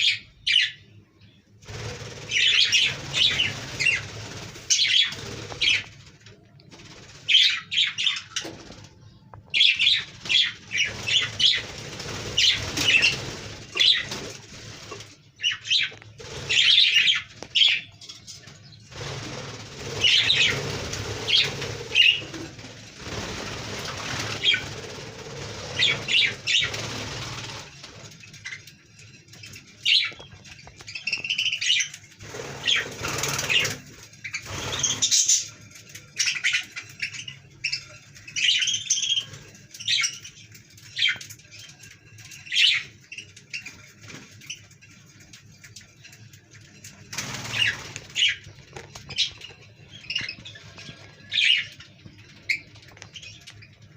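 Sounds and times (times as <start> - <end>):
budgerigars chirping: 0.0 - 0.8, 1.9 - 5.9, 9.6 - 14.3, 15.4 - 18.0, 19.7 - 22.4, 23.8 - 27.6, 29.8 - 41.2, 42.4 - 43.8, 47.2 - 53.6
wing flapping: 1.6 - 9.0, 9.8 - 17.8, 18.4 - 28.6, 29.8 - 36.0, 46.6 - 53.4.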